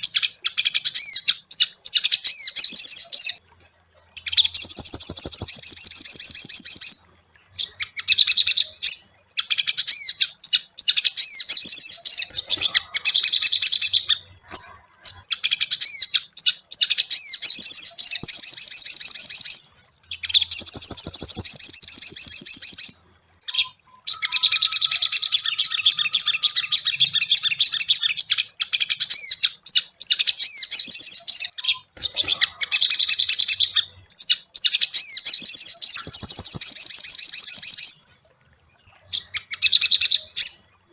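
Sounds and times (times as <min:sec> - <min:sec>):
bird high-pitched rapid chirps: 0:00.0 - 0:40.9.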